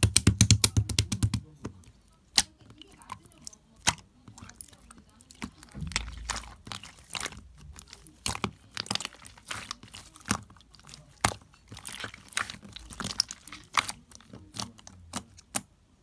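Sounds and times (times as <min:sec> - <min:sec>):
slime crunching and popping: 0:00.0 - 0:01.6, 0:02.3 - 0:15.7.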